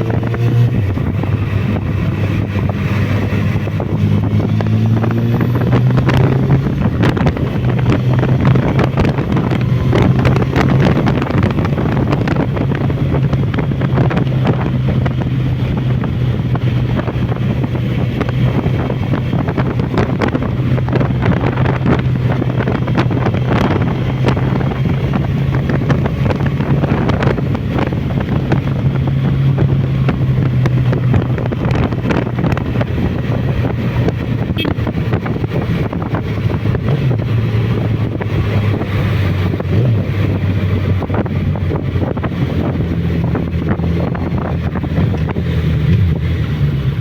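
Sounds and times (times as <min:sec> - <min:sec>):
motorcycle engine running: 0:00.0 - 0:47.0
wind buffeting microphone: 0:00.0 - 0:47.0.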